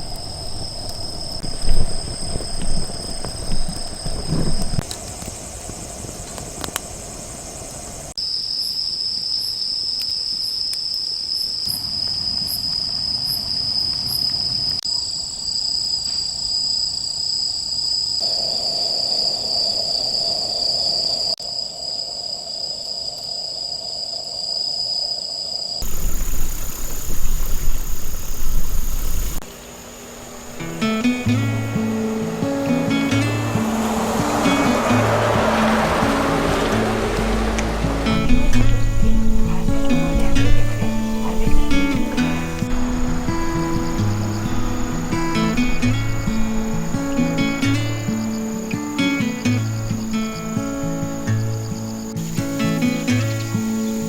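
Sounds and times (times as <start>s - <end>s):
crickets trilling: 0.0s - 54.0s
rushing noise: 25.8s - 51.1s.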